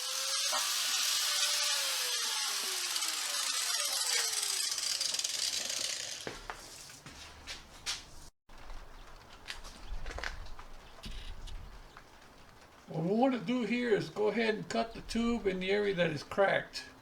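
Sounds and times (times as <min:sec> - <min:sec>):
power tool cutting metal tube: 0:00.0 - 0:06.3.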